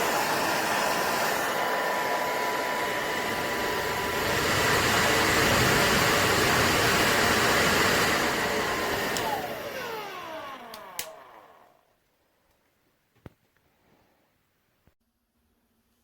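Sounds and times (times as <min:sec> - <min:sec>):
hair dryer blowing: 0:00.0 - 0:11.8
motor winding down whine: 0:00.0 - 0:11.9.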